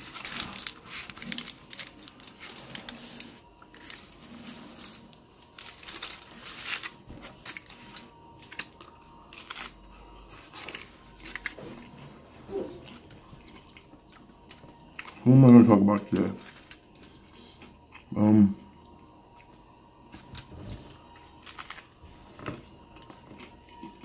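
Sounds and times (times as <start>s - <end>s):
crunchy chewing: 0.0s - 15.3s.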